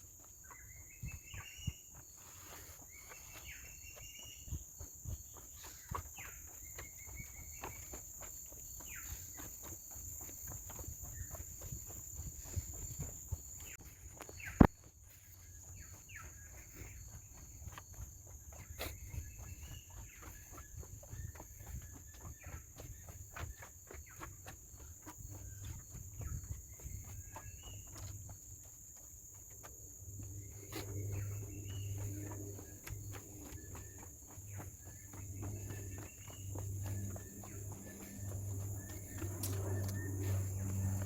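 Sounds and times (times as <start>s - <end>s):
footsteps crunching on trail: 0.0s - 41.0s
high-pitched insect drone: 29.4s - 41.0s
chirping calls: 30.2s - 41.0s.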